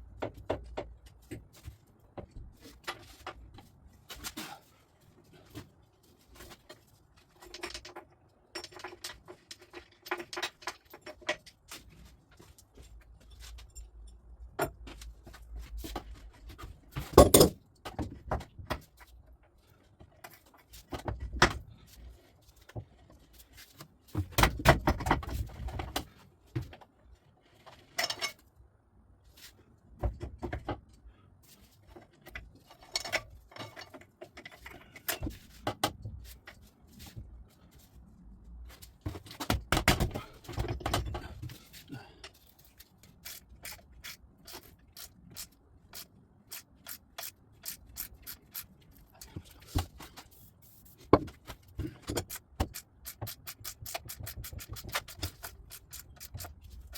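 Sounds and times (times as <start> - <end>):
tools and metal parts clinking: 6.3 - 18.0, 27.5 - 28.5, 31.9 - 35.8, 51.5 - 56.9.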